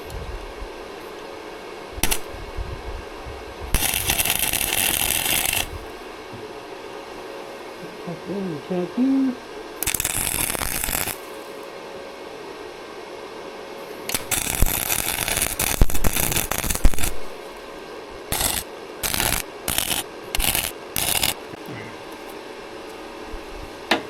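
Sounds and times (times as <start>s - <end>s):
welder arc crackling: 2.0s - 2.3s, 3.7s - 6.0s, 9.8s - 11.4s, 14.0s - 17.7s, 18.3s - 21.6s.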